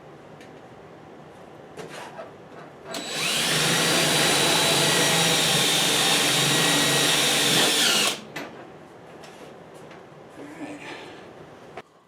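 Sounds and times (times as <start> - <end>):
power tool motor whining: 3.0 - 8.2.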